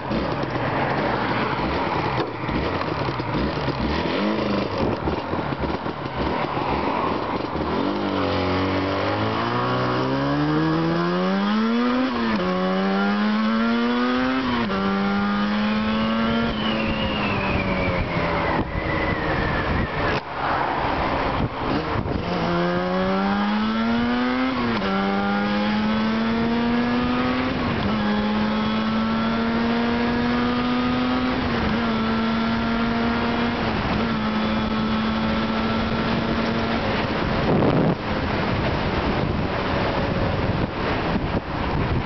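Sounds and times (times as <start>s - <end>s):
motorcycle engine shifting gears: 0.0s - 42.0s
wind noise rush: 15.5s - 25.0s, 25.9s - 42.0s.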